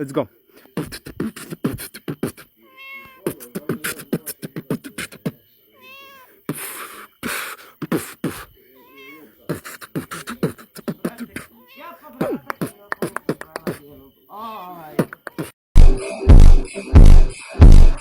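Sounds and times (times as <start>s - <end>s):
beatbox percussion: 0.8s - 2.5s, 3.3s - 5.4s, 6.5s - 8.5s, 9.5s - 11.5s, 12.2s - 13.8s, 15.0s - 18.0s
cat meowing: 2.6s - 3.5s, 5.8s - 6.4s, 8.8s - 9.4s, 11.5s - 12.2s.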